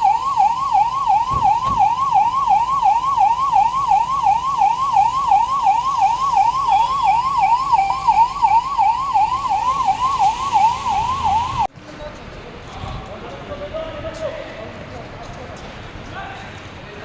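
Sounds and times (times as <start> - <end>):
emergency siren yelping: 0.0 - 11.7.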